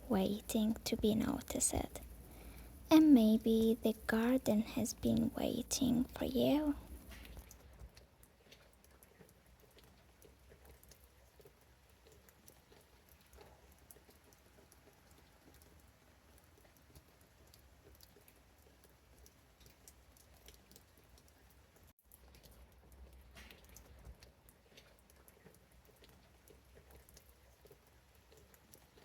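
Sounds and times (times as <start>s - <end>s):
low steady hum: 0.0s - 7.6s
raindrops pattering: 0.0s - 29.0s.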